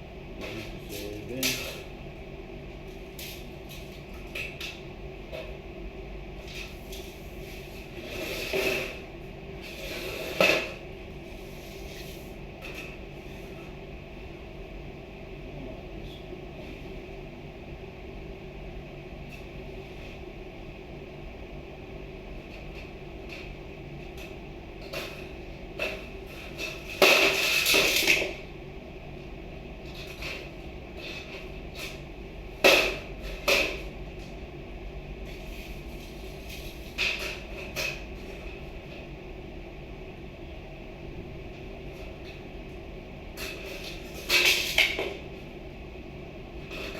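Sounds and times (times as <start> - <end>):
low background hum: 0.0 - 46.9.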